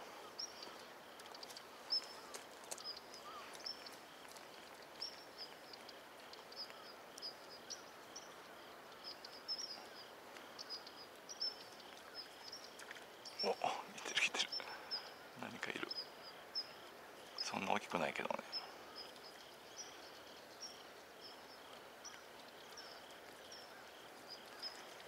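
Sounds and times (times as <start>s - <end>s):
small birds chirping: 0.0s - 25.0s
faint clicks: 0.6s - 7.3s.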